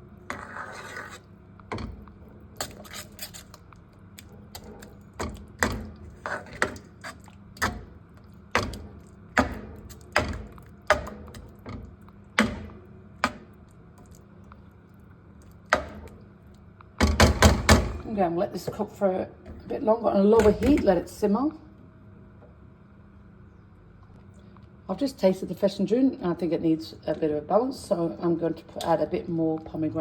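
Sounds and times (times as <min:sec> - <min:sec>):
low steady hum: 0:00.0 - 0:30.0
spoon stirring stew in pot: 0:00.3 - 0:14.7.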